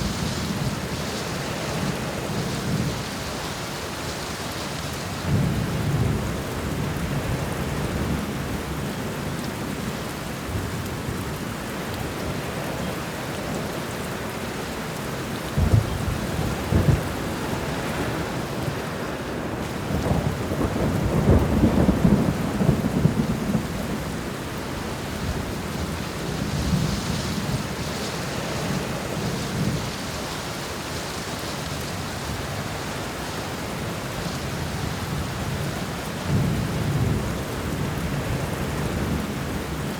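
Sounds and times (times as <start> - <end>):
heavy rain hissing: 0.0 - 39.9
thunder rumbling: 5.2 - 9.7, 15.4 - 31.2
sharp thunder cracks: 15.6 - 17.4.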